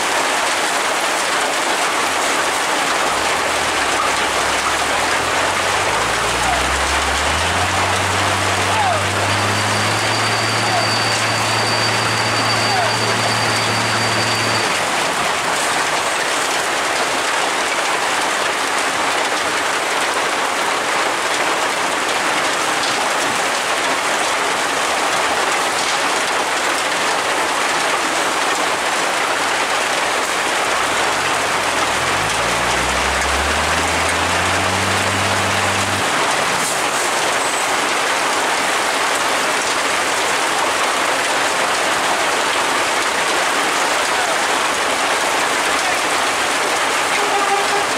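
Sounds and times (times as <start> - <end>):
steady rain: 0.0 - 47.9
vehicle engine: 2.2 - 17.0, 29.4 - 40.4.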